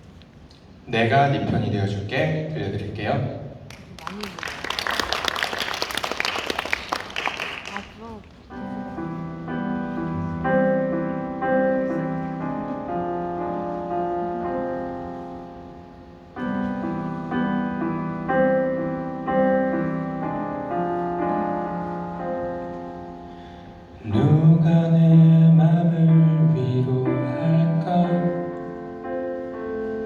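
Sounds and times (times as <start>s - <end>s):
slow piano ballad: 8.4s - 30.0s.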